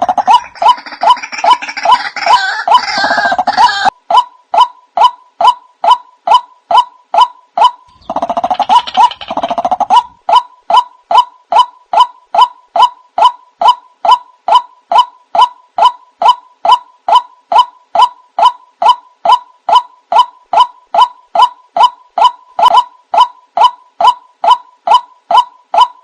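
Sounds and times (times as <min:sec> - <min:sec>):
waterhen calling: 0:07.9 - 0:10.2.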